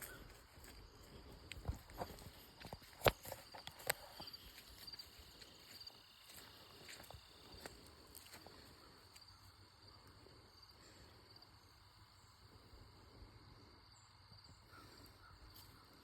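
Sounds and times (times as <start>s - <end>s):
footstep crunches: 0.0s - 9.2s
crickets chirping: 0.0s - 16.0s.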